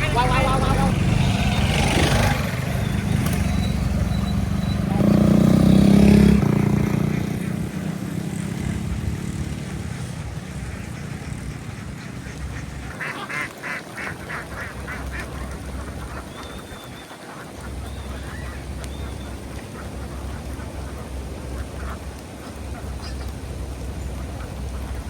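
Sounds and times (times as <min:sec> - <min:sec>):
engine: 0:00.0 - 0:16.9
ducks quacking: 0:00.0 - 0:25.0.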